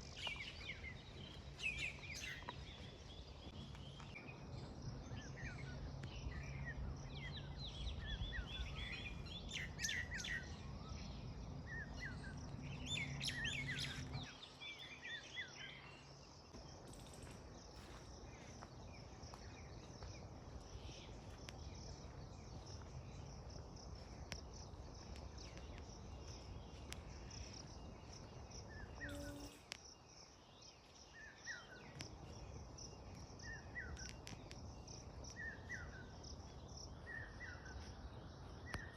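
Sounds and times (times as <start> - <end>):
birds chirping: 18.1 - 38.9.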